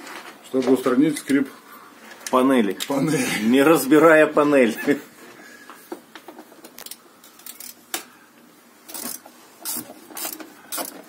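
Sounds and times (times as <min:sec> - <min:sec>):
hand tools and bolts rattling: 0:08.9 - 0:11.0.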